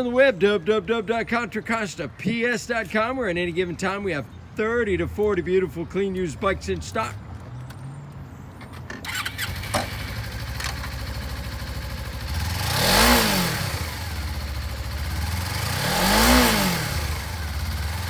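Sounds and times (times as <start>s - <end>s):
motorcycle engine starting: 8.6s - 18.0s
engine idling: 9.1s - 18.0s
engine revving: 9.1s - 18.0s.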